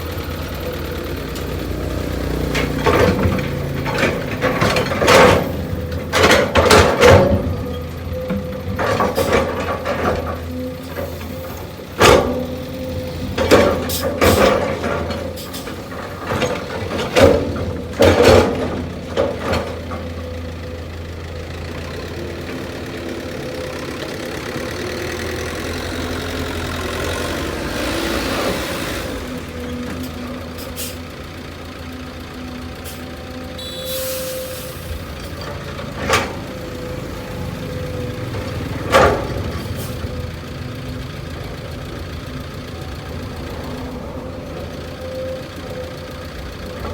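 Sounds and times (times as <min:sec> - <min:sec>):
diesel engine running: 0:00.0 - 0:46.9
loud clunks and knocks: 0:02.6 - 0:20.3, 0:38.2 - 0:39.9.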